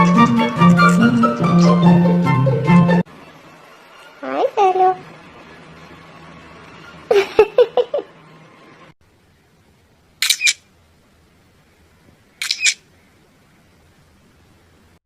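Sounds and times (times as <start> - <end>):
parrot calling: 10.2 - 10.6, 12.4 - 12.8.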